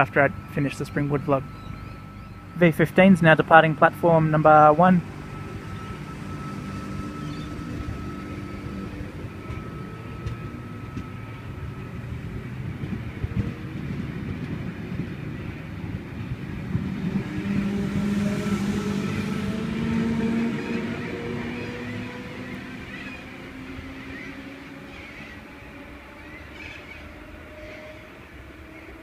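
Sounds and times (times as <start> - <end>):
electric train pulling away: 0.0 - 29.0.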